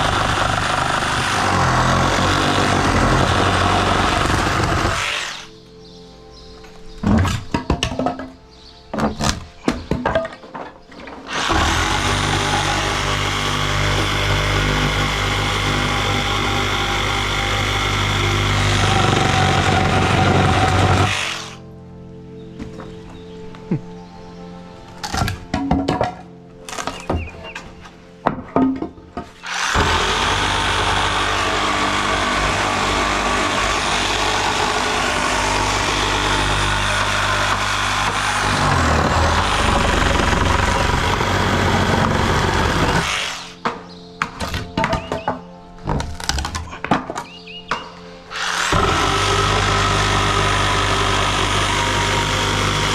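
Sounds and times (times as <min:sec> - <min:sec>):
power tool running: 0:00.0 - 0:05.7, 0:11.2 - 0:21.7, 0:29.4 - 0:43.7, 0:48.3 - 0:52.9
wood knocking and clattering: 0:06.6 - 0:11.5, 0:25.0 - 0:29.4, 0:43.6 - 0:48.0.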